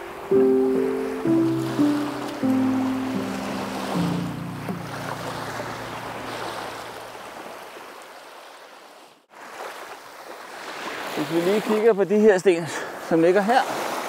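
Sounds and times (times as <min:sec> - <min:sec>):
waves washing over stones: 0:01.2 - 0:08.5.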